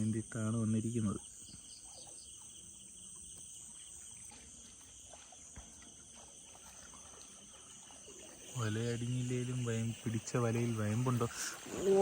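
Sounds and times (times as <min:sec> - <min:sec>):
night insects shrilling: 0:07.4 - 0:12.0.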